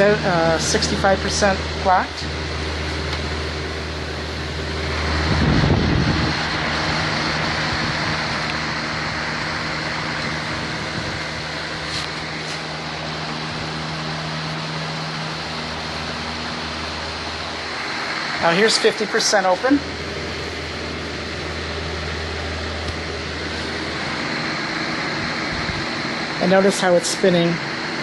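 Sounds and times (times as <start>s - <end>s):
electric fan humming: 0.0s - 28.0s
low whoosh: 4.2s - 11.9s.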